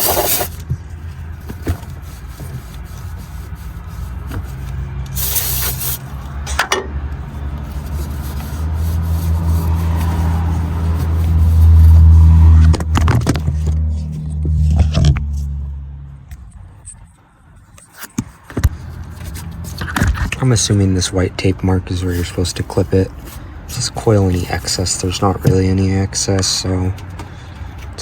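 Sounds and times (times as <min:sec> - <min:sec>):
aerosol can spraying: 0:00.0 - 0:00.6, 0:05.1 - 0:06.1.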